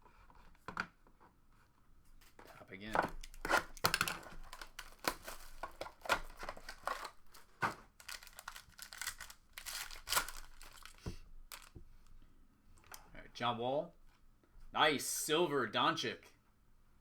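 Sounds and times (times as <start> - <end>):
packaging being torn and crinkled: 3.2 - 11.8.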